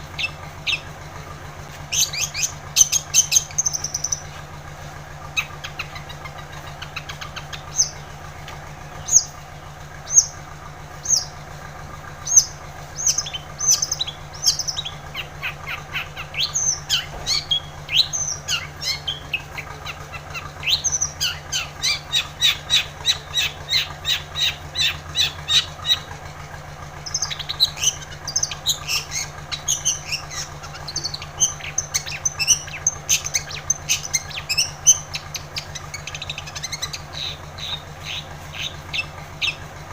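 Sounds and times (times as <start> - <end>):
shrike singing harsh chattering notes: 1.9 - 4.5, 12.2 - 26.1, 27.0 - 39.6.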